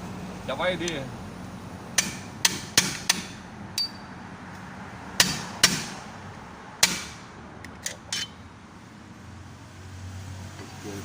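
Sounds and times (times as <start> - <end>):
hammer striking metal: 2.0 - 4.1, 5.2 - 6.0, 6.8 - 7.2.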